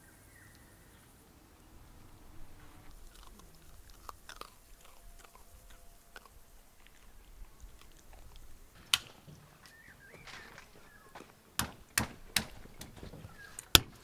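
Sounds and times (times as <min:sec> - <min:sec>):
faint crunches and clicks: 0:01.7 - 0:14.0
sharp click: 0:08.8 - 0:09.5.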